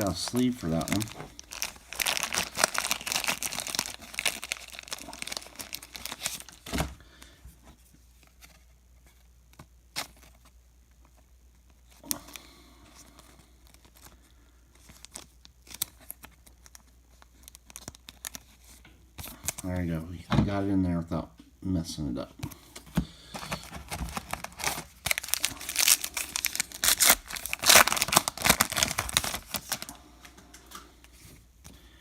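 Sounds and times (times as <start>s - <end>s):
plastic sleeves crinkling: 0.0s - 8.6s, 9.9s - 19.7s, 22.5s - 31.2s.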